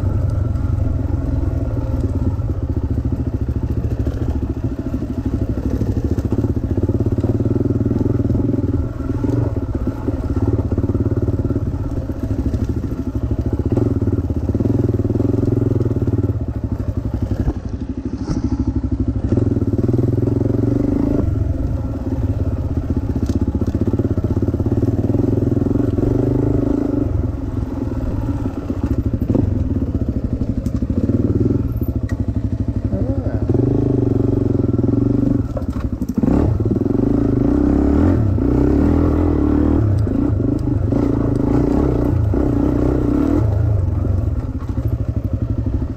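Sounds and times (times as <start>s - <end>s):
dirt bike engine revving: 17.1s - 31.9s, 32.5s - 35.5s, 36.1s - 44.9s.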